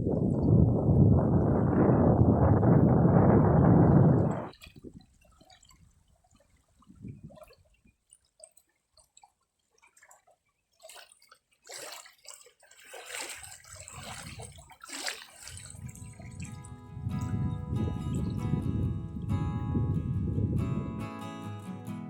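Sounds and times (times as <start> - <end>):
water drips and plops: 4.2 - 17.4
splashing and rustling: 4.3 - 17.4.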